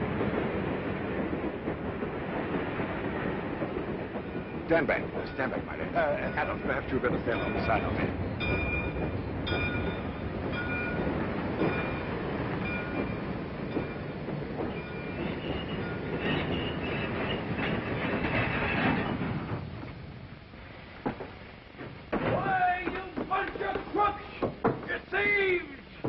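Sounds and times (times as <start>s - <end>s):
train rumble and clatter: 0.0s - 26.0s
bell-like ringing: 4.3s - 16.7s
wheels and brakes squealing: 11.6s - 19.6s.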